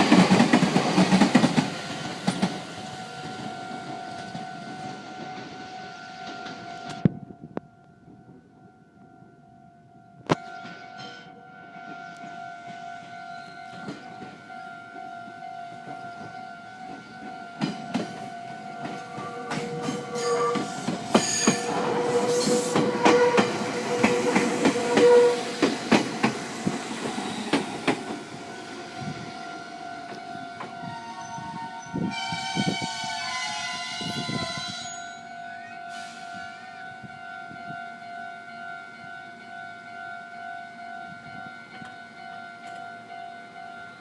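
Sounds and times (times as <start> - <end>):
train wheels clattering over rail joints: 0.0 - 2.7, 16.9 - 29.1
level crossing alarm dinging: 10.2 - 44.0.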